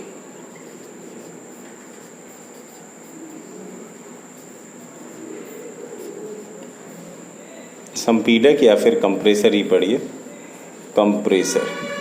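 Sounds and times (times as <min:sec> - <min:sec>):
background hiss: 0:00.0 - 0:12.0
high-pitched whine: 0:11.2 - 0:12.0.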